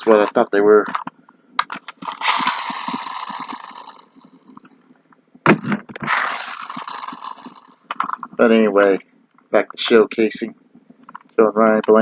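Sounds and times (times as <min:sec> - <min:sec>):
toy truck clicks: 0:01.6 - 0:04.6, 0:06.1 - 0:08.3
toy spring motor whirring: 0:01.9 - 0:04.7, 0:06.0 - 0:08.4.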